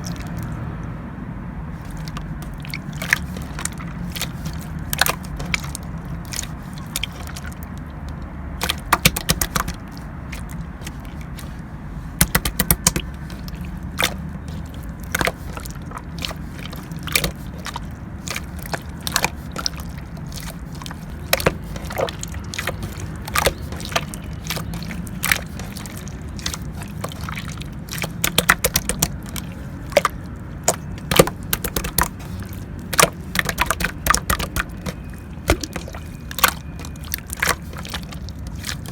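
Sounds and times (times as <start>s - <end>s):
slime squished by hand popping: 8.6s - 9.8s, 12.2s - 26.7s, 27.9s - 38.8s.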